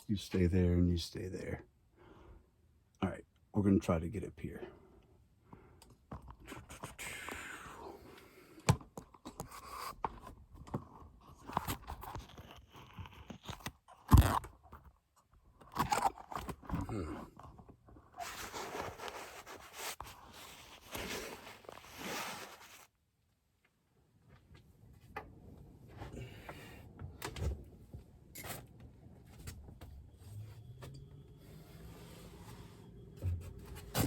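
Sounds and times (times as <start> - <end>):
scraping and rustling of climbing: 18.0 - 22.9, 29.3 - 34.0.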